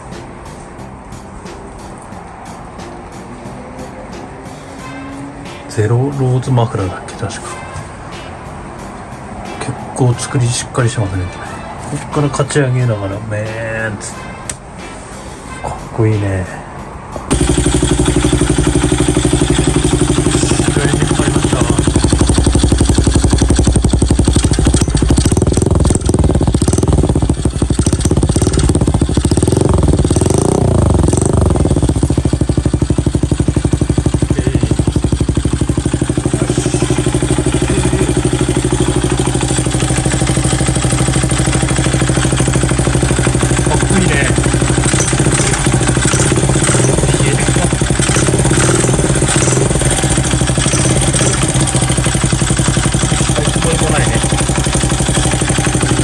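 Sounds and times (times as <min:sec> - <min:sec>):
motorbike engine revving and idling: 0:17.2 - 0:56.0.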